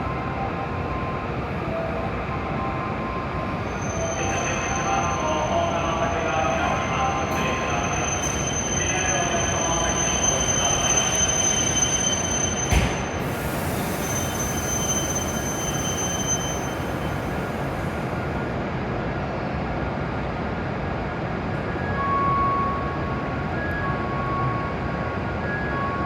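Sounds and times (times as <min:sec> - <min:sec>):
train running with high whine: 0:00.0 - 0:26.0.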